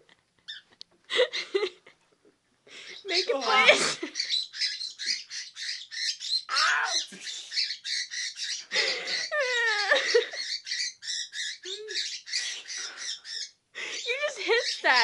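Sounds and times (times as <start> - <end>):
pet bird chirping: 0.4 - 0.7, 2.8 - 15.0
bird falling cries: 6.4 - 7.1.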